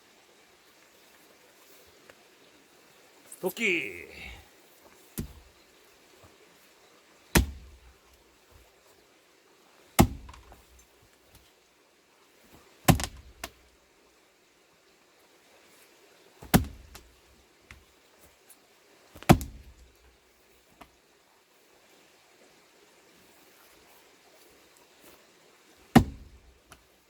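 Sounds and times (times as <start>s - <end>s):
axe striking a log: 5.2s - 5.4s, 7.3s - 7.9s, 10.0s - 10.6s, 12.9s - 13.5s, 16.4s - 17.1s, 19.2s - 19.7s, 25.9s - 26.5s.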